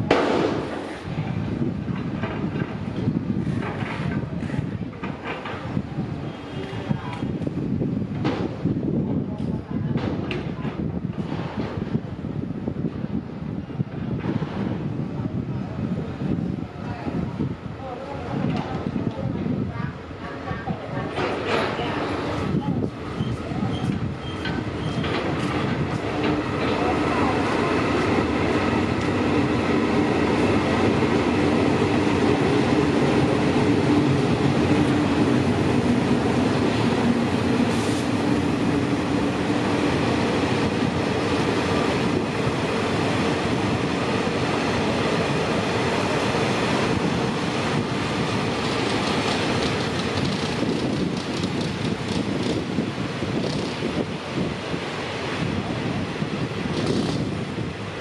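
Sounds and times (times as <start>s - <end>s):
train wheels rumbling on track: 0.0s - 58.0s.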